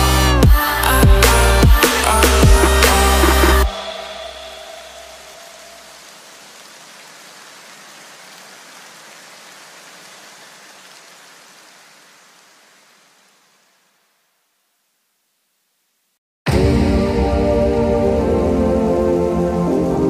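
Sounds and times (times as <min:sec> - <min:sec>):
low electronic music: 0:00.0 - 0:05.8, 0:16.5 - 0:20.0
steady hiss: 0:01.3 - 0:16.2.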